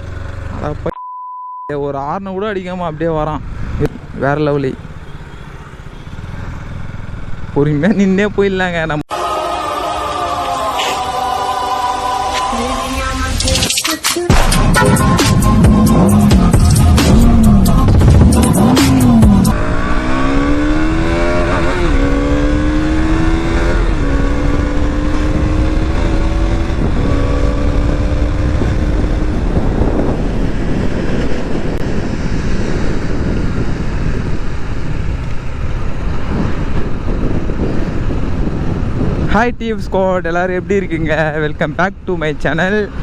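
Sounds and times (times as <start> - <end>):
intro music: 9.1 - 28.5.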